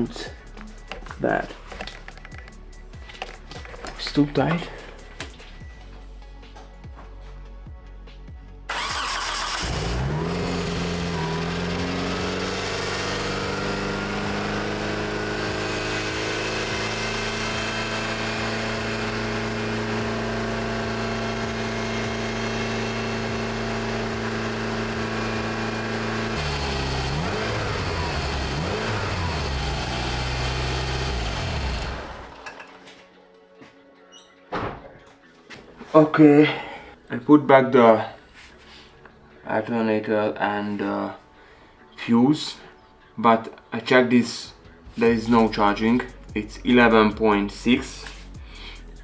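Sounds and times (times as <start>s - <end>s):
car engine high idle: 8.7s - 32.4s.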